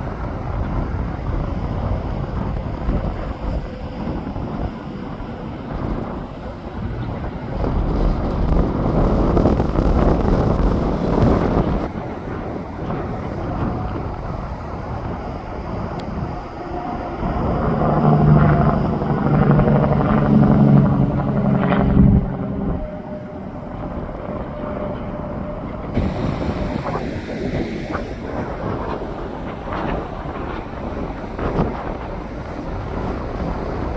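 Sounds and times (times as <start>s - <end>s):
truck passing with loud drone: 8.6s - 33.9s
highway traffic rushing past: 11.2s - 33.9s.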